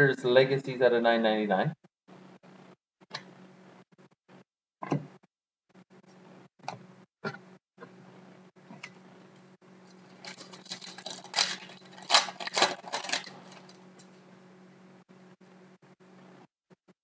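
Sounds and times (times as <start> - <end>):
low steady hum: 5.8 - 16.5
trading cards rustling: 9.9 - 13.8.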